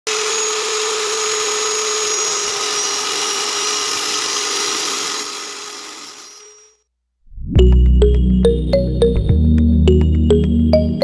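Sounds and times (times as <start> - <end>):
angle grinder high whine: 0.0 - 6.8.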